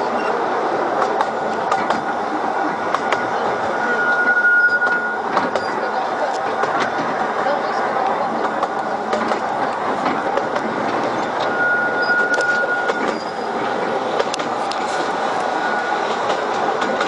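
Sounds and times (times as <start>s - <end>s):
train rolling rumble: 0.0s - 17.0s
thin high wheel squeal: 3.8s - 5.8s, 11.1s - 13.6s.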